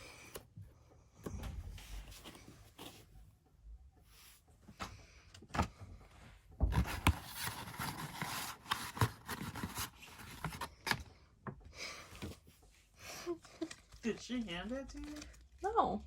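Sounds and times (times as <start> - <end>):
cardboard packaging rustling: 6.7 - 11.0, 13.6 - 15.6.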